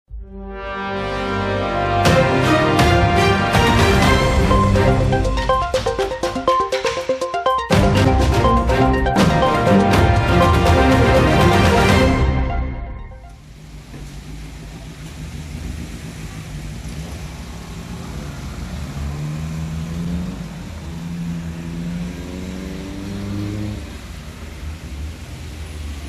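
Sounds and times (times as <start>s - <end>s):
motor vehicle engine: 7.8s - 26.0s.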